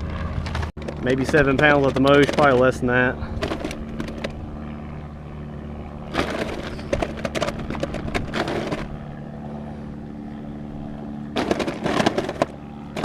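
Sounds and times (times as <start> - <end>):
low motor hum: 0.0 - 13.0
rattling and scraping: 0.1 - 4.4, 6.1 - 9.0, 11.4 - 13.0.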